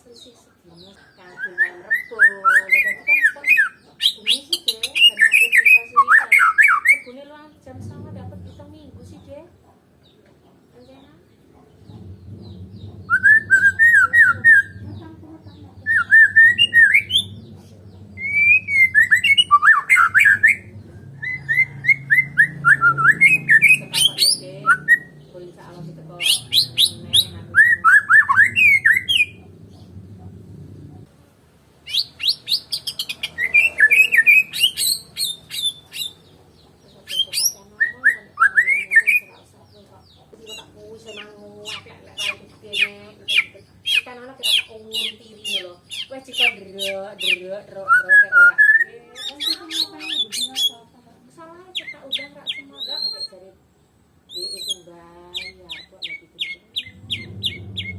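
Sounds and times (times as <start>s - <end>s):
low steady hum: 4.4s - 57.9s
bird singing whistled trills: 12.4s - 14.8s, 15.9s - 17.5s, 18.2s - 25.3s, 26.2s - 29.4s, 31.9s - 36.2s, 37.1s - 39.3s, 43.3s - 50.8s, 51.8s - 53.4s, 54.3s - 57.9s.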